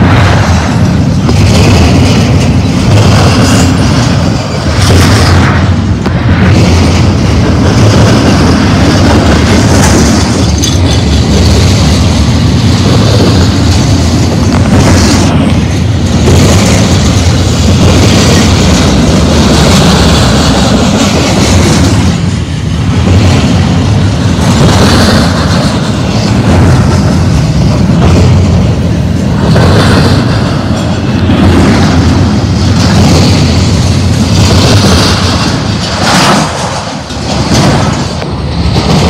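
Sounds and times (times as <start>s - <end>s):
freight train wheels rumbling: 0.0s - 39.0s.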